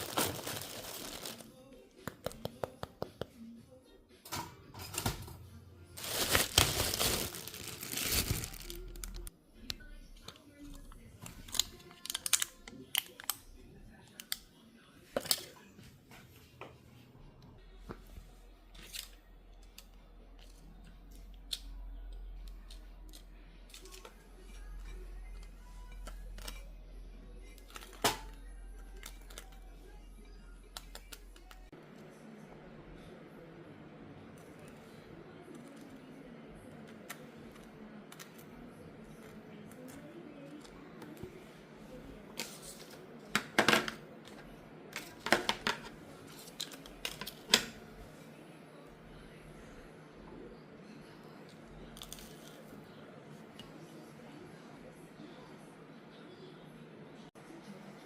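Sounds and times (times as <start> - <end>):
packaging crinkling: 0.0 - 1.5, 6.0 - 9.3
kitchen things clicking and knocking: 4.2 - 8.5, 27.6 - 28.4, 43.3 - 47.8.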